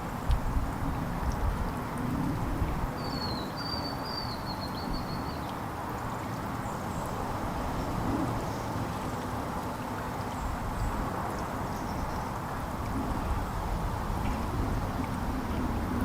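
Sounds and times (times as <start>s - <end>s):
outdoor background noise: 0.0s - 16.0s
songbird trill: 3.0s - 5.5s.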